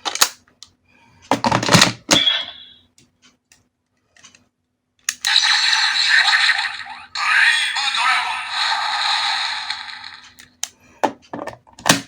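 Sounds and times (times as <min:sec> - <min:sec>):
hissing electronic sound effect: 0:05.3 - 0:10.2.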